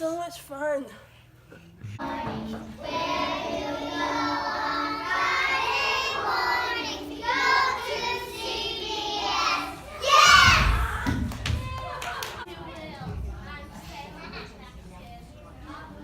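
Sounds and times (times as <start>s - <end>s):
child singing: 2.0s - 10.5s.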